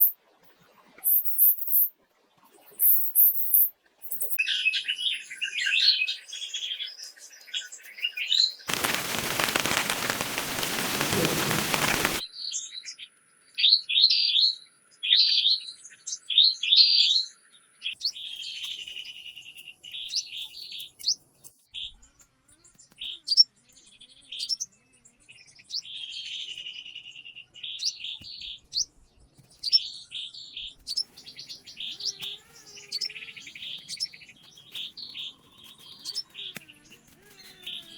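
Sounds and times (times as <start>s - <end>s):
loud even hiss: 8.7s - 12.2s
wild birds chirping: 8.7s - 12.2s, 30.9s - 37.9s.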